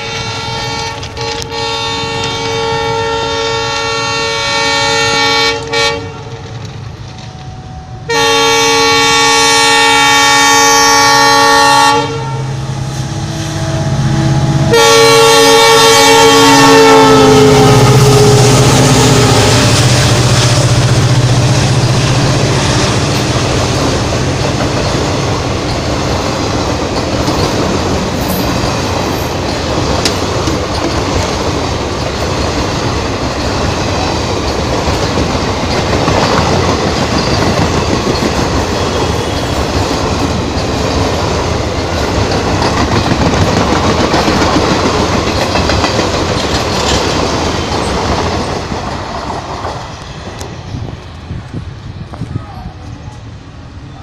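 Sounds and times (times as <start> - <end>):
train coaches passing rumble: 0.0 - 54.0
wheels clicking over rail joints: 23.0 - 50.5.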